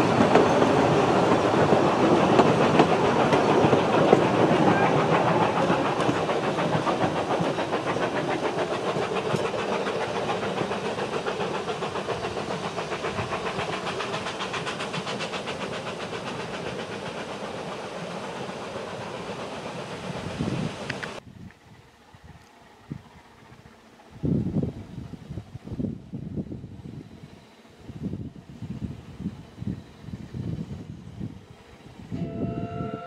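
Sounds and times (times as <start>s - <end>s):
train wheels clacking over rail joints: 0.0s - 21.2s.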